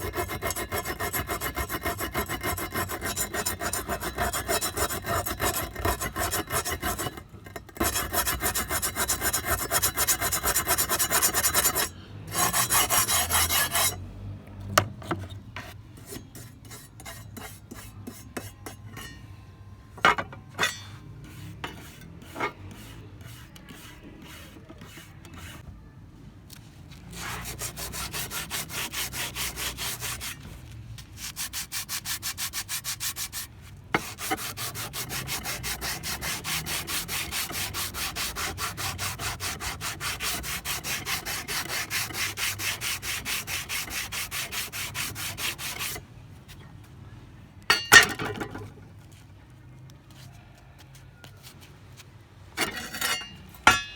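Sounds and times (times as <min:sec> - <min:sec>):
abrasive rubbing on metal: 0:00.0 - 0:14.0.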